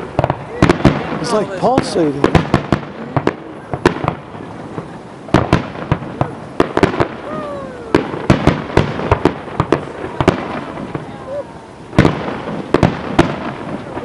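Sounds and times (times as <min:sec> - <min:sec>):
fireworks bangs: 0:00.0 - 0:14.0
falling firework whistle: 0:06.7 - 0:09.8.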